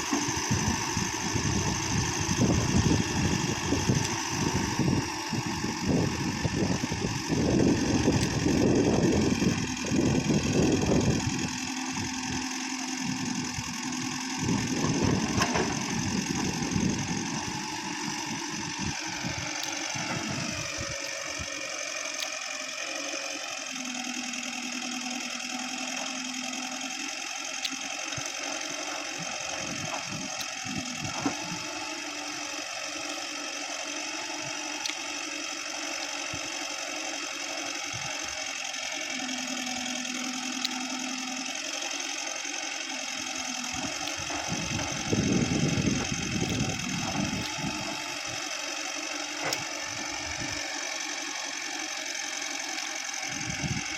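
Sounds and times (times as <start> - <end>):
diesel engine running: 0.0 - 53.9
high whine: 52.8 - 53.9.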